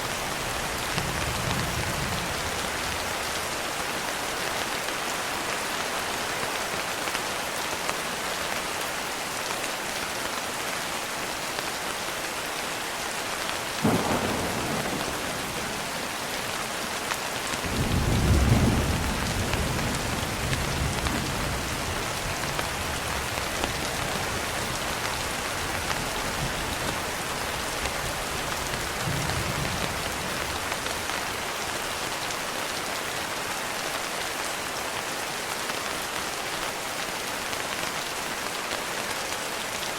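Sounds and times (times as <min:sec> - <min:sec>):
heavy rain: 0:00.0 - 0:39.9
low thunder rumble: 0:13.8 - 0:16.3.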